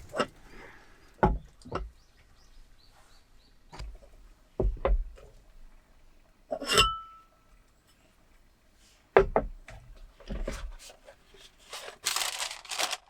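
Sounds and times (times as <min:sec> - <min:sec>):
knocks and thumps: 0:04.6 - 0:05.2, 0:09.2 - 0:10.7.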